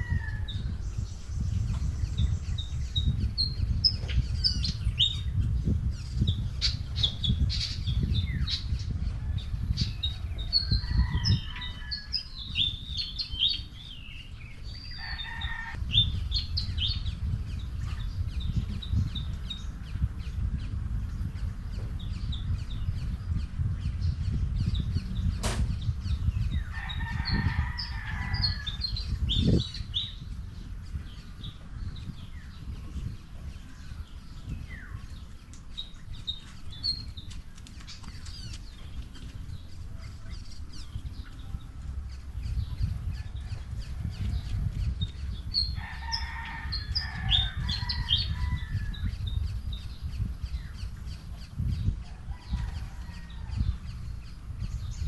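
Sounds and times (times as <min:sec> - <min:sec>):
small birds chirping: 0:00.0 - 0:55.0
low rumble: 0:15.7 - 0:37.2.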